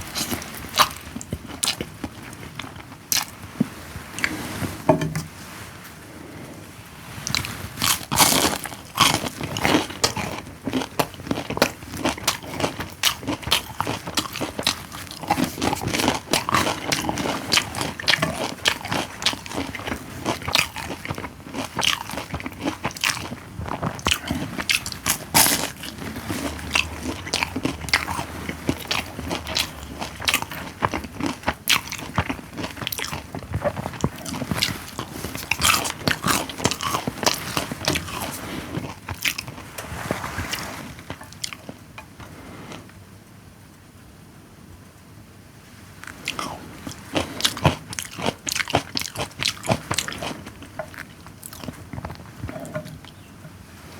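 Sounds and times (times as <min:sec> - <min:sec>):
person chewing food: 0:00.0 - 0:04.6, 0:07.2 - 0:43.0, 0:46.0 - 0:53.3.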